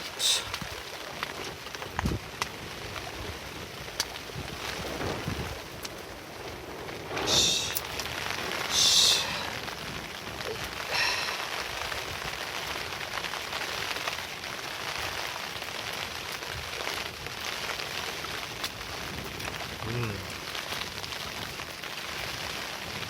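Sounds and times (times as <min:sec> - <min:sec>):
steady rain: 0:00.0 - 0:23.0
short loud hisses: 0:07.2 - 0:07.8, 0:08.7 - 0:09.5.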